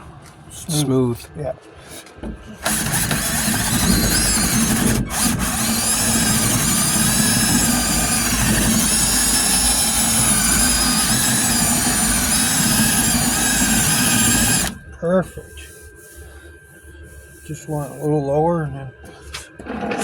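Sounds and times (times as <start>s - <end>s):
power sander whining: 2.6s - 14.9s.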